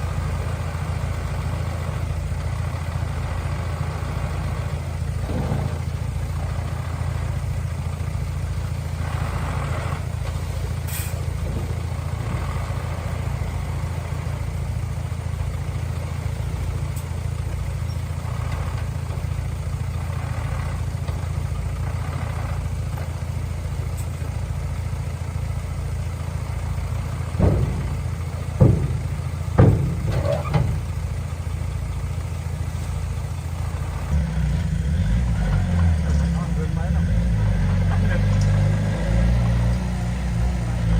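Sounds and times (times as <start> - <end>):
diesel engine rumbling: 0.0 - 40.9
sharp metallic knocks: 27.3 - 30.8.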